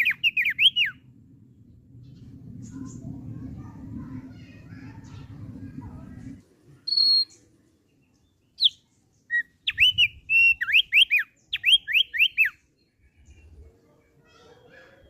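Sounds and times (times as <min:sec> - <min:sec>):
white-eye whistled song: 0:00.0 - 0:01.0, 0:06.9 - 0:07.4, 0:08.6 - 0:12.6.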